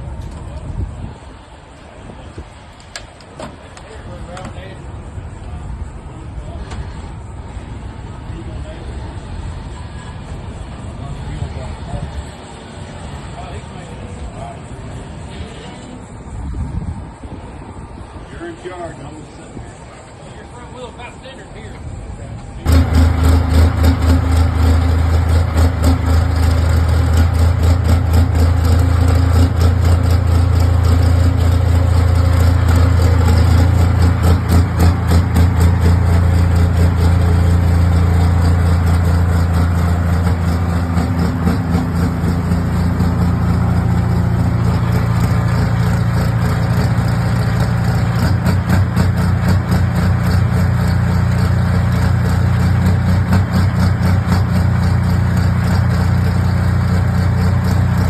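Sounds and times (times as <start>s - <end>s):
heavy engine pulsing at low speed: 0.0s - 58.0s.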